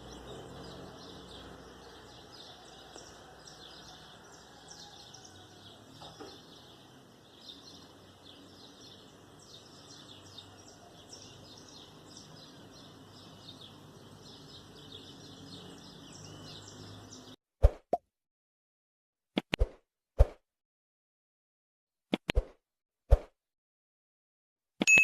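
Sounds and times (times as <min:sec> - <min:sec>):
many birds chirping: 0:00.0 - 0:17.4.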